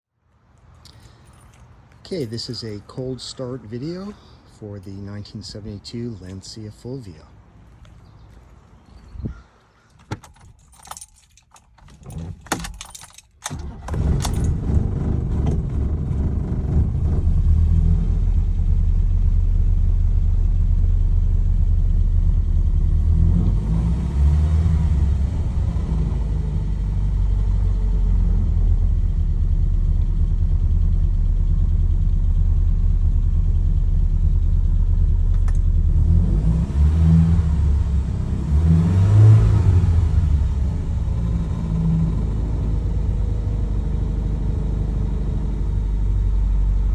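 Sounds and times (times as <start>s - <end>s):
car engine cranking and idling: 0.4s - 46.9s
key rattle and clicks: 0.7s - 2.9s, 9.9s - 13.6s, 14.2s - 14.5s.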